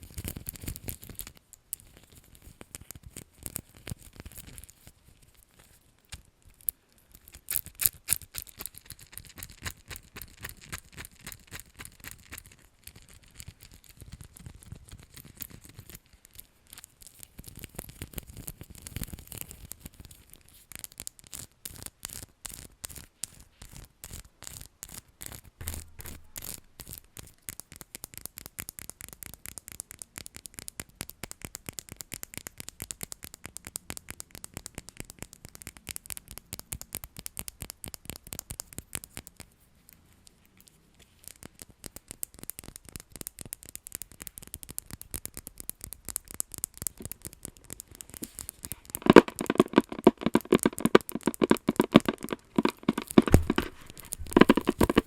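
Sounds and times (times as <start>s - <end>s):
light tapping and scratching: 25.2s - 28.2s, 36.8s - 55.0s.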